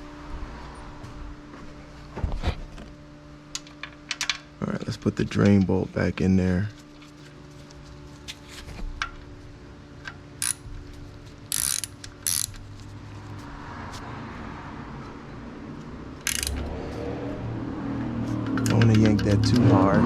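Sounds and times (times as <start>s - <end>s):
ratchet wrench clicking: 10.4s - 10.6s, 11.5s - 12.6s, 16.2s - 16.7s, 18.3s - 19.7s.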